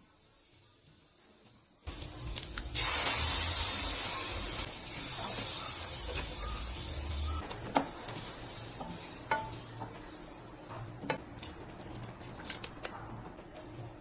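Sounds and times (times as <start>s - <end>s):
food sizzling in pan: 0.0s - 10.7s
utensil tapping pan: 8.8s - 10.0s.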